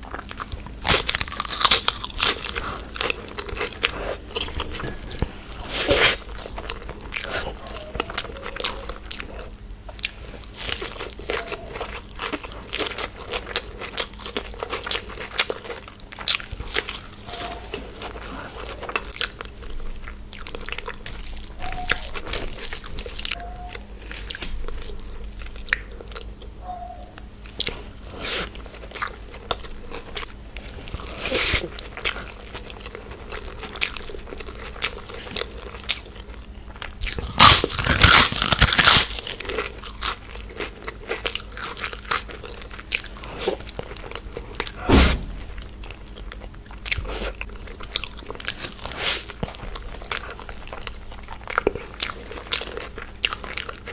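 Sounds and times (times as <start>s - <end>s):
crunchy chewing: 0.0s - 53.9s.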